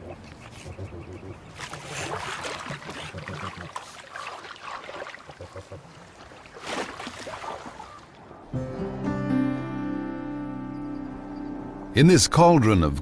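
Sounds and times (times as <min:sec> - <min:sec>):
water splashing and trickling: 0:01.5 - 0:08.4.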